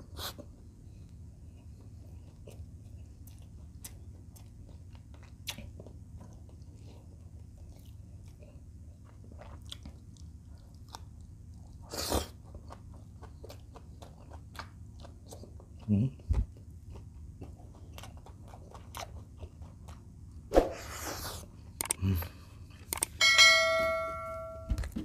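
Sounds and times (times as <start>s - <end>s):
wet chewing mouth clicks: 3.2s - 8.4s, 21.8s - 22.0s.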